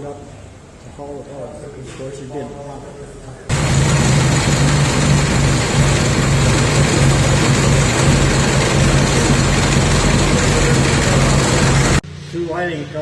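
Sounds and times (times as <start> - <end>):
tractor engine running: 3.5 - 12.0.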